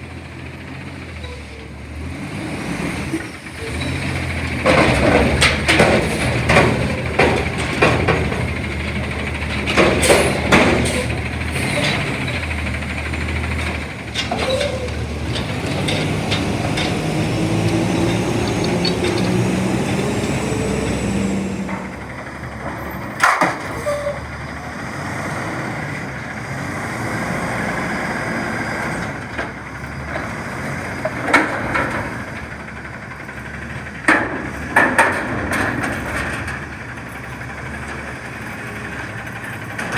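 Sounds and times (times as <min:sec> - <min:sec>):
garbage truck engine running: 0:00.0 - 0:39.9
loud metal clanks and bangs: 0:03.7 - 0:24.1.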